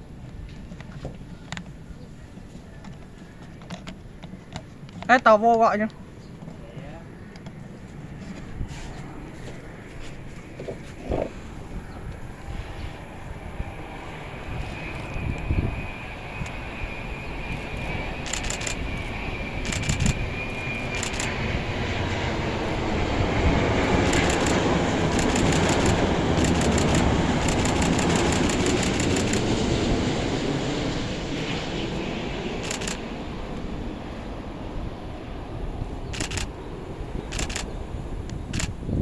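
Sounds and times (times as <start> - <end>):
jet airliner passing: 0.0 - 39.0
thin high engine whine: 0.0 - 39.0
camera shutter clicking: 18.2 - 21.7, 23.8 - 29.5, 32.6 - 33.1, 36.2 - 36.6, 37.3 - 37.7, 38.4 - 38.8.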